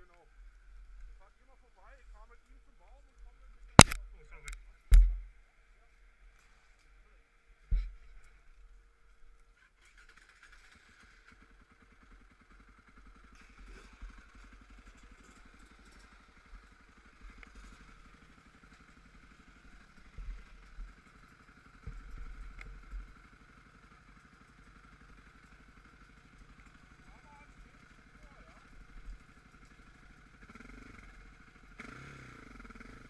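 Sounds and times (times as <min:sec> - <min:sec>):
quad bike engine running: 0:00.0 - 0:05.4, 0:06.8 - 0:33.0
knocks and clunks: 0:04.9 - 0:05.3.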